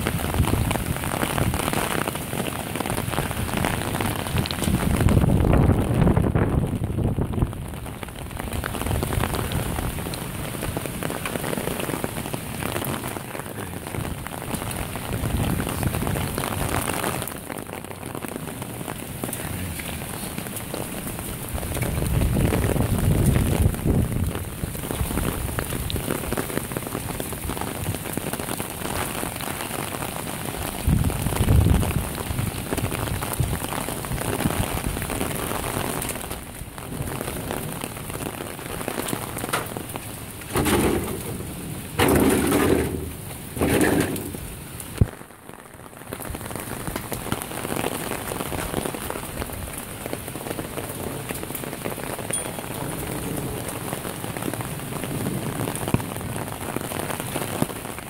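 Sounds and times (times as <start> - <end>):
heavy rain on lawn and patio: 0.0 - 58.0.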